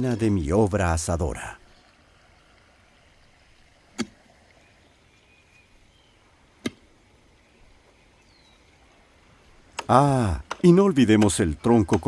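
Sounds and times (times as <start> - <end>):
faint bird chirps: 4.5 - 6.3, 7.4 - 8.8.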